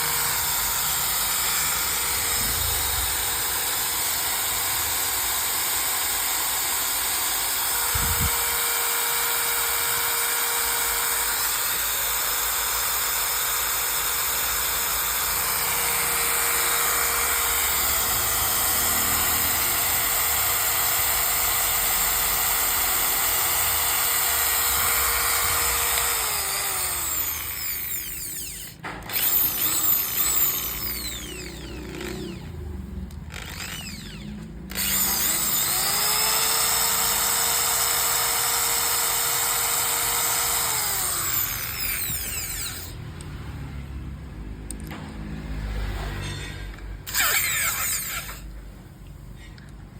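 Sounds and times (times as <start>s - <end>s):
electric drill running: 0.0s - 32.6s, 33.2s - 43.0s, 47.0s - 48.5s.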